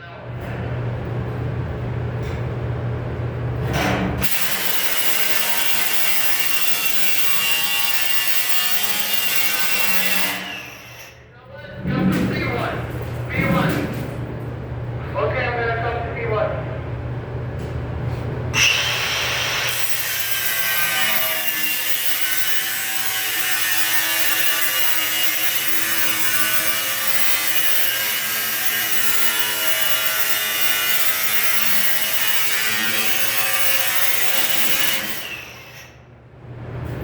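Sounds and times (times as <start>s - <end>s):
power tool on sheet metal: 4.2s - 11.2s, 18.6s - 36.0s.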